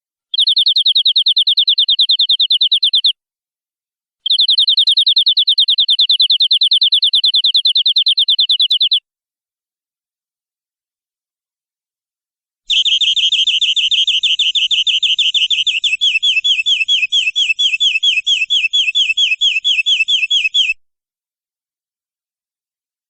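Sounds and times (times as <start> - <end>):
canary singing a rolling trill: 0.4 - 3.1, 4.2 - 9.0, 12.7 - 20.8.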